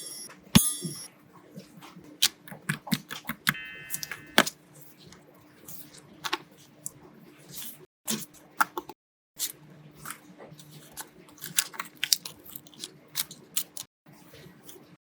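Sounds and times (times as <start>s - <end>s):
bright ringing sound: 0.0s - 1.1s, 3.6s - 4.5s.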